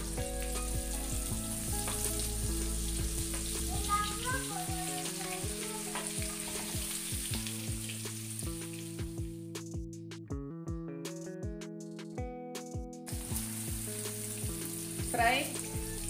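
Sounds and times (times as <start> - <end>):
paneer sizzling in a pan: 0.0 - 9.4, 13.1 - 16.0
background music with low beat: 0.0 - 16.0.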